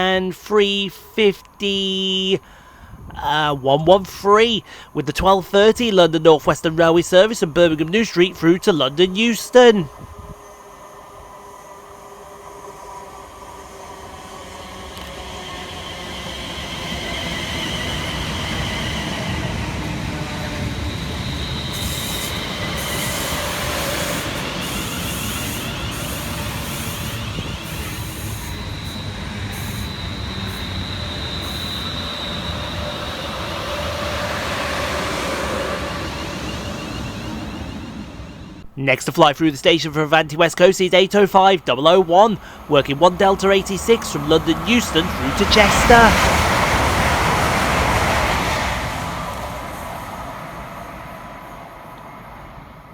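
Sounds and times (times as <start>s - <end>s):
train rail rumble: 1.3s - 38.8s, 42.3s - 52.9s
wheel and brake squeals: 14.9s - 38.6s.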